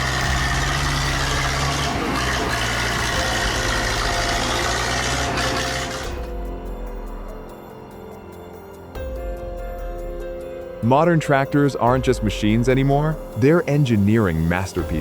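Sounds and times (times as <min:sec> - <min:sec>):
tractor engine running: 0:00.0 - 0:07.6
music: 0:00.0 - 0:15.0.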